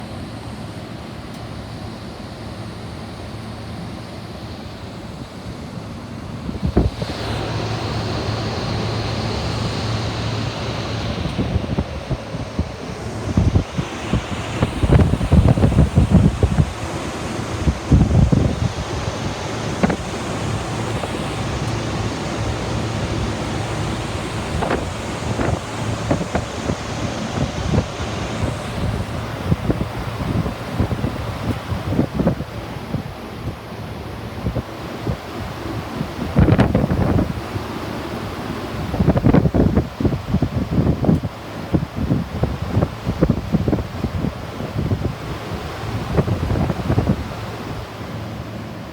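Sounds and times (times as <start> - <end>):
condensing unit fan rushing: 0.0 - 48.9
wind on microphone: 6.4 - 48.5.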